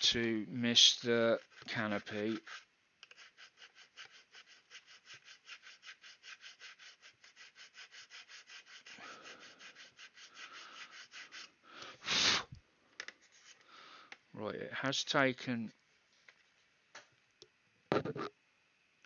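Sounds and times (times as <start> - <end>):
needle file rasping on plastic: 1.3 - 11.6.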